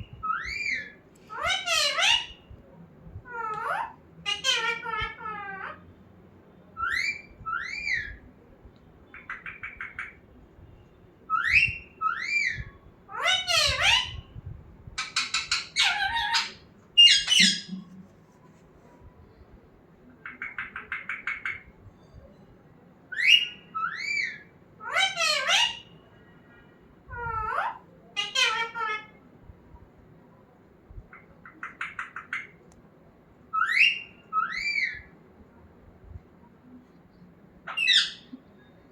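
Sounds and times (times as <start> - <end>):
parrot calls and squawks: 0.0 - 2.6, 3.2 - 5.9, 6.8 - 8.2, 9.1 - 10.2, 11.3 - 14.4, 15.0 - 18.0, 20.2 - 22.1, 23.1 - 26.0, 27.0 - 29.3, 31.1 - 32.6, 33.5 - 35.2, 37.6 - 38.4.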